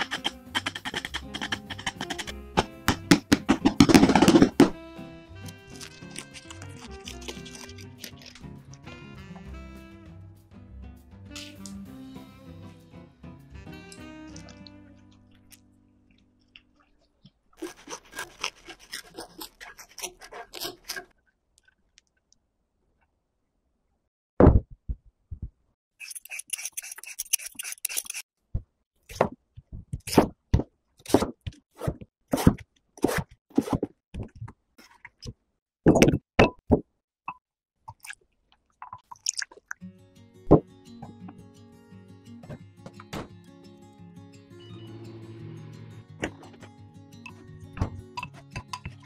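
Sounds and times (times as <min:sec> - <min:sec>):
potatoes cut on wooden board: 0:00.0 - 0:04.8, 0:05.4 - 0:08.6, 0:17.6 - 0:21.2
crisp crackling: 0:05.6 - 0:08.5.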